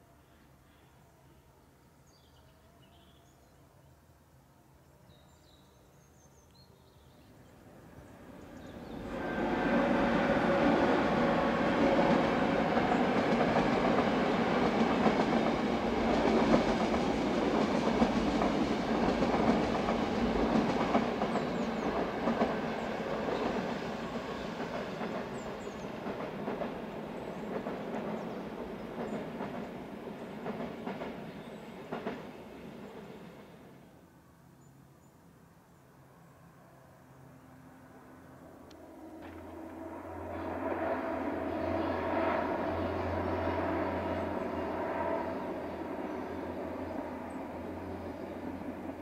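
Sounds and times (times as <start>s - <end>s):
train rumbling over viaduct: 7.6s - 33.8s, 37.2s - 49.0s.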